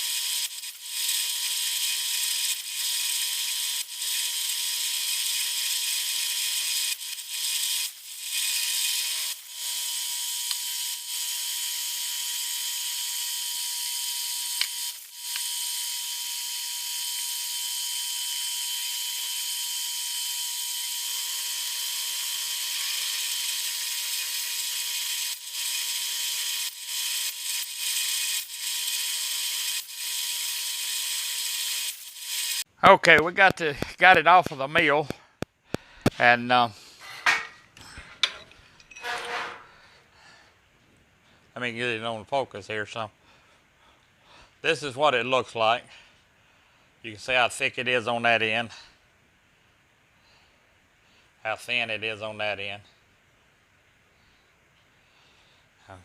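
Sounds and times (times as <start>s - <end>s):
milling machine cutting metal: 0.0s - 32.6s.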